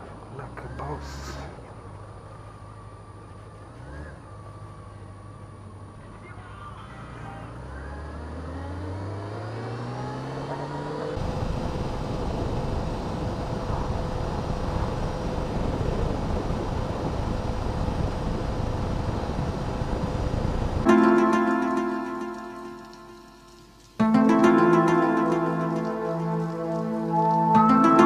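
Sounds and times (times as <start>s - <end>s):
motorcycle engine accelerating: 1.4s - 28.0s
wind noise on microphone: 11.2s - 20.9s.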